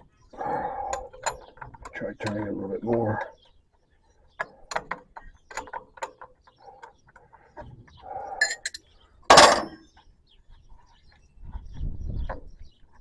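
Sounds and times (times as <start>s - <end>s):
loud metal clank: 9.3s - 9.8s.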